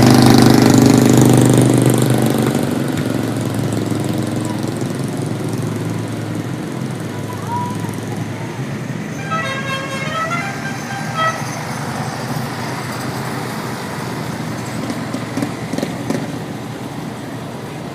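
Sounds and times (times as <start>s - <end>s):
small engines running: 0.0s - 17.9s
horn notes: 9.1s - 11.8s.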